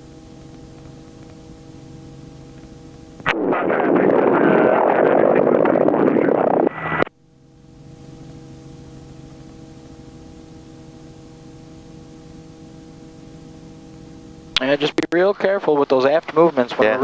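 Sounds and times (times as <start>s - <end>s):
helicopter hum with steady tones: 0.0s - 17.0s
loud distorted rush of noise: 3.2s - 7.1s.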